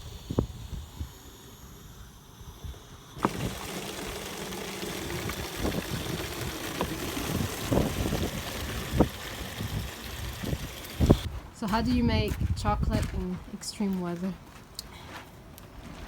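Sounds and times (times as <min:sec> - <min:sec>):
water from hose into jug: 0:03.1 - 0:11.3.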